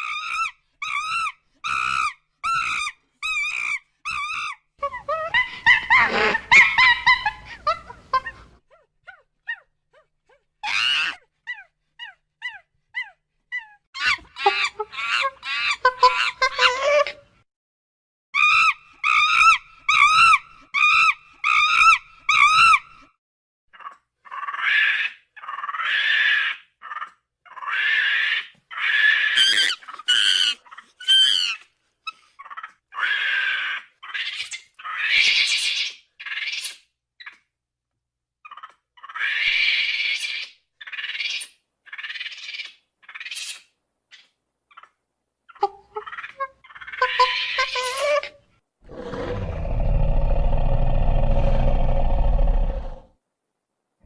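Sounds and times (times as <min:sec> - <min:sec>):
monkey screeching calls: 0:00.0 - 0:07.3, 0:18.4 - 0:22.8, 0:23.8 - 0:37.4.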